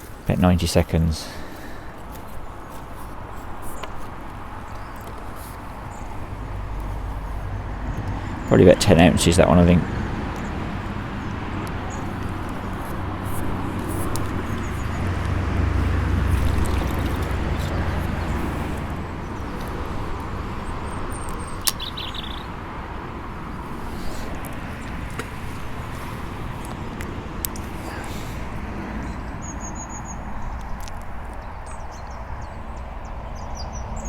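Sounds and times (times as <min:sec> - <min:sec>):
bird chirps: 0:20.7 - 0:22.5.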